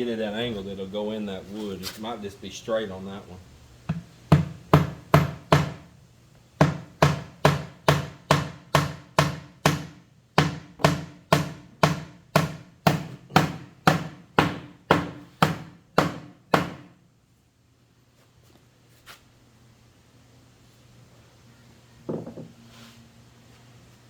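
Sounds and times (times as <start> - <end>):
hammer driving nail into wood: 6.6 - 16.9.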